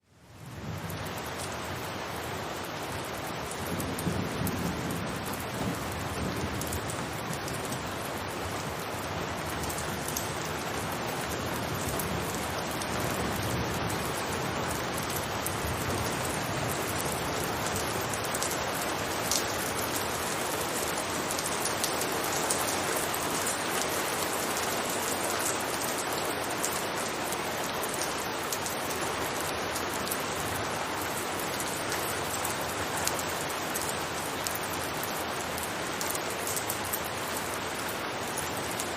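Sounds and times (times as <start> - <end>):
rain on a rooftop: 0.0 - 38.9.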